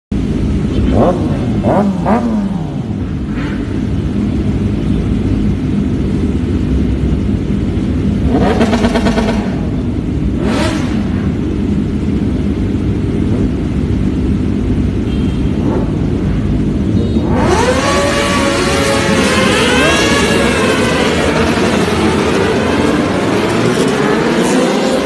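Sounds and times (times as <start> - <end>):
motorcycle engine revving: 0.2 - 25.0
motorcycle engine idling: 11.3 - 17.2.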